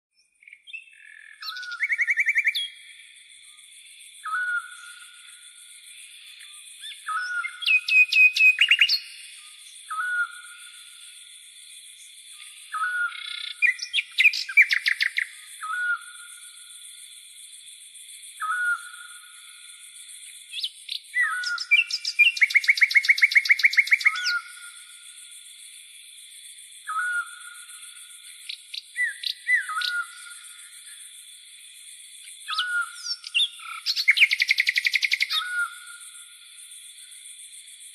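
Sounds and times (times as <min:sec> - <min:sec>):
bird trilling: 0:21.2 - 0:24.4, 0:29.0 - 0:30.2.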